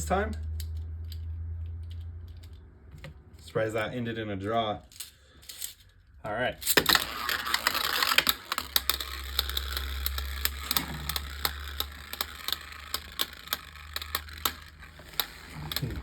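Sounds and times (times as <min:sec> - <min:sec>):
spinning tops clashing: 0:06.6 - 0:16.0.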